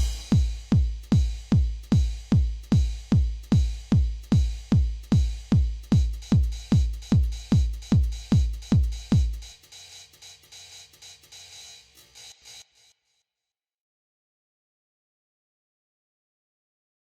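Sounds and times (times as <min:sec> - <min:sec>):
electronic music: 0:00.0 - 0:00.6
heavy kick drum: 0:00.0 - 0:09.5
light percussion: 0:00.0 - 0:12.6.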